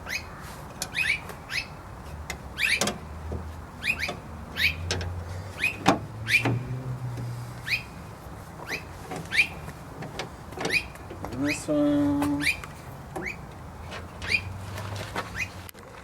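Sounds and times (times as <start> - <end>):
small bird chirping: 0.0 - 1.8, 3.8 - 4.9, 5.5 - 6.7, 7.6 - 8.0, 8.6 - 9.7, 12.3 - 13.5, 14.2 - 14.5.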